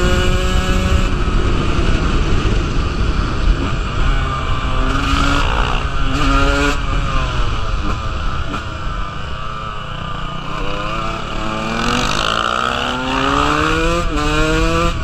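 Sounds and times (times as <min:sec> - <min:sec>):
wind rush: 0:00.0 - 0:15.0
dirt bike engine revving: 0:03.4 - 0:09.1, 0:10.4 - 0:15.0.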